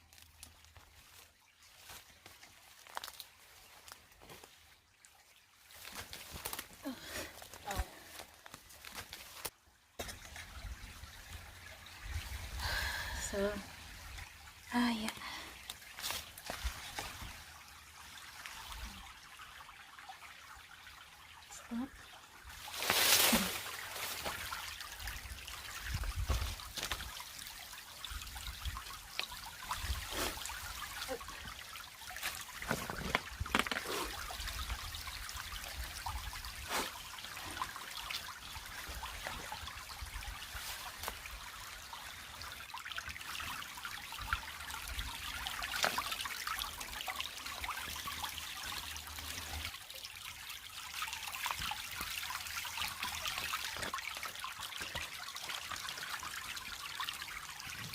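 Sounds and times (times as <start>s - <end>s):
creek trickling: 0.0s - 57.9s.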